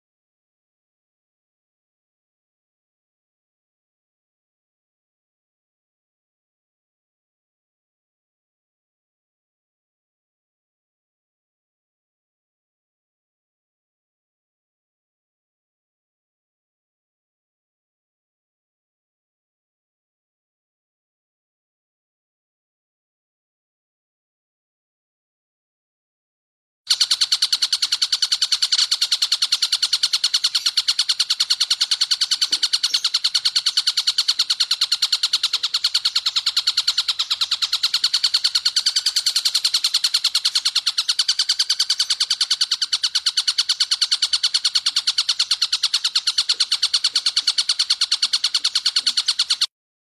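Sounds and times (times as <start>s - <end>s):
kingfisher rattling trill: 26.9s - 49.7s.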